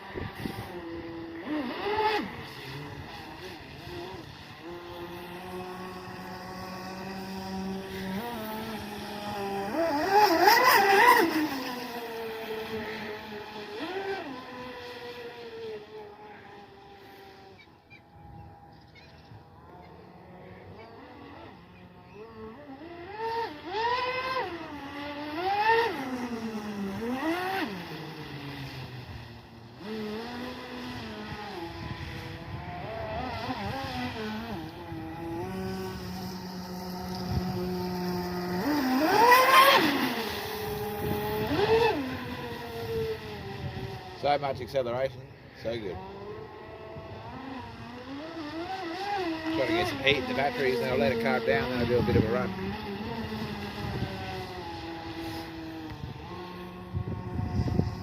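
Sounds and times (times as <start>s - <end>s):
rc boat electric motors whining: 0.0s - 58.0s.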